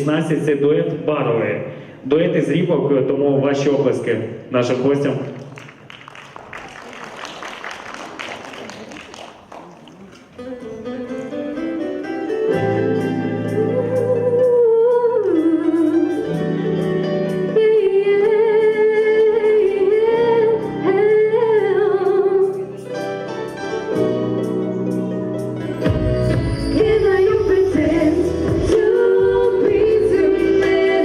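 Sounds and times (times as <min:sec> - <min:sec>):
soft instrumental accompaniment: 0:10.0 - 0:31.0
woman singing with vibrato: 0:12.9 - 0:16.7, 0:17.3 - 0:22.8, 0:26.7 - 0:31.0.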